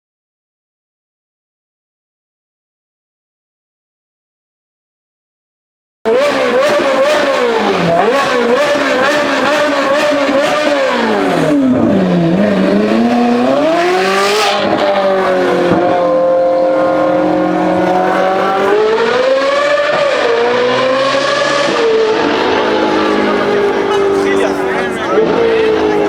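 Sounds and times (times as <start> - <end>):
sports car engine: 6.1 - 26.0.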